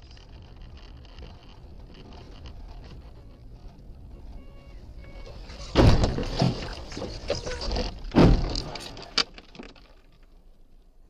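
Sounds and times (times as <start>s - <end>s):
noisy rumble: 0.0s - 11.0s
vehicle crash: 2.1s - 10.4s.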